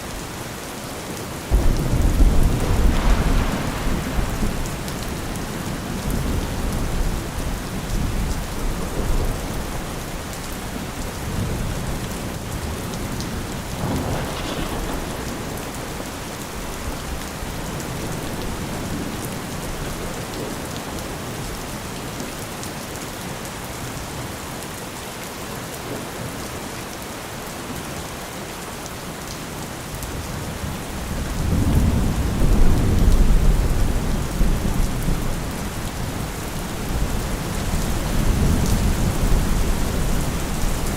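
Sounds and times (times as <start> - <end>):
steady rain falling: 0.0 - 40.9
rolling thunder rumbling: 1.4 - 20.7.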